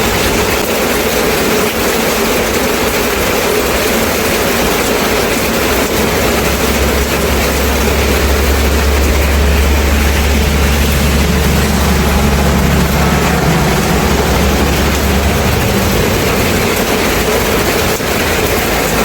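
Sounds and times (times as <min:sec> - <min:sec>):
steady rain hiss: 0:00.0 - 0:19.0
low steady rumble: 0:04.8 - 0:18.9.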